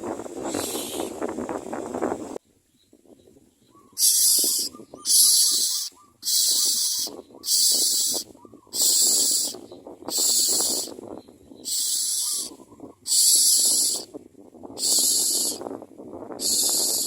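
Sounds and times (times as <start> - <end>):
nestlings harsh calls: 0.4 - 1.1, 3.8 - 11.0, 11.6 - 14.1, 14.8 - 15.7, 16.4 - 17.0.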